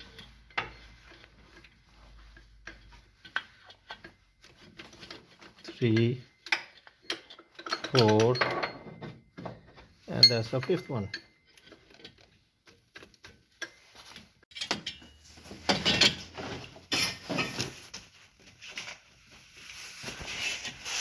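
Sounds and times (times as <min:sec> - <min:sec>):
water pump being worked loose: 0:00.0 - 0:08.6
metallic clicks and knocks: 0:02.6 - 0:16.3.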